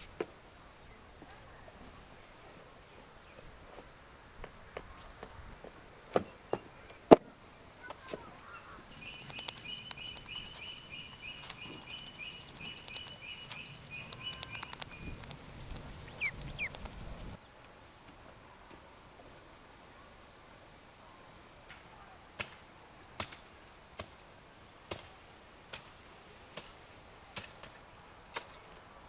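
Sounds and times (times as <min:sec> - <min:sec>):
bird chirping rapidly: 0:08.9 - 0:17.4
rustling and handling noise: 0:08.9 - 0:17.4.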